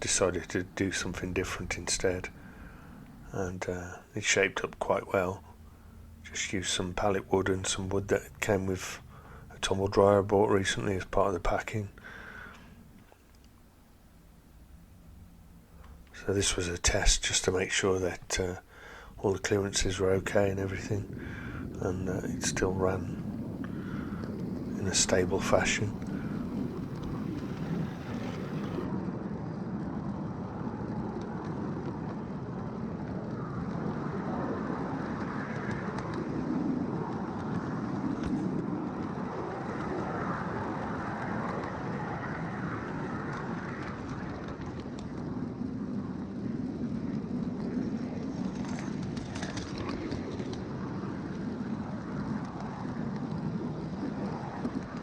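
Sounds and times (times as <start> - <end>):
miniature train wheels rumbling: 48.3 - 51.1
clicks at rail joints: 48.4 - 50.6.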